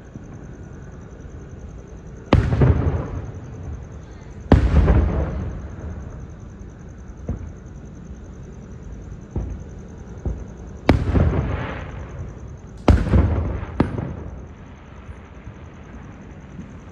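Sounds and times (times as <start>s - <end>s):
fireworks booming: 2.3s - 6.5s, 7.1s - 7.8s, 9.2s - 16.9s.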